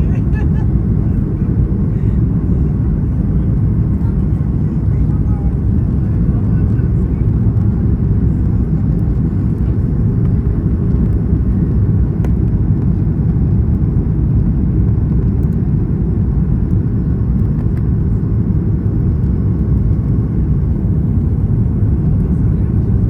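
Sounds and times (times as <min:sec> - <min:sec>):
airplane cabin rumble: 0:00.0 - 0:23.0.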